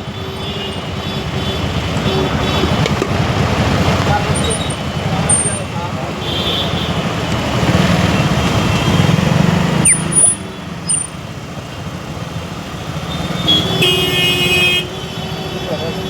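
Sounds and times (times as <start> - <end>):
vehicle horn: 0.0 - 3.2, 5.3 - 7.2, 7.9 - 11.0, 13.1 - 16.0
motorcycle engine running: 0.0 - 13.9
street traffic noise: 0.0 - 16.0.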